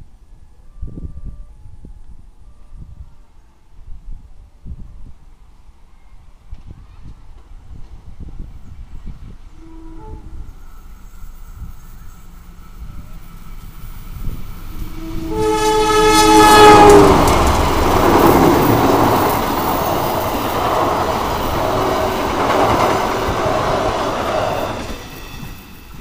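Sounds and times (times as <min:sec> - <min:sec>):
train rumbling and clattering on rails: 0:04.5 - 0:26.0
train horn chord: 0:09.6 - 0:10.8, 0:11.4 - 0:23.9.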